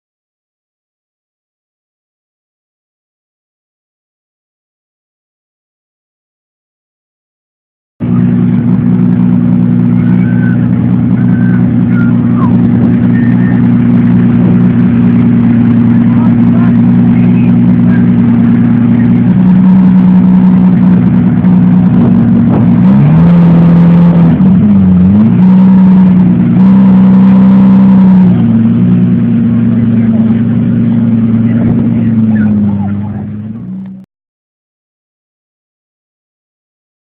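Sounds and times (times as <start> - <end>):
car engine running: 8.0 - 34.1.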